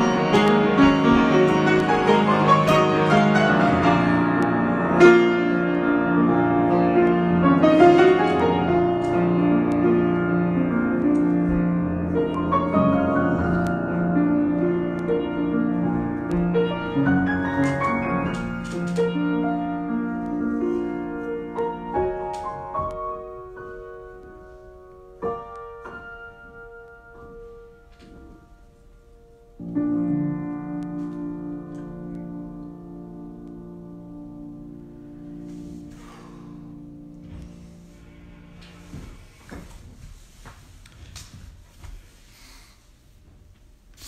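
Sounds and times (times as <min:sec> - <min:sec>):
solo piano: 0:00.0 - 0:41.6.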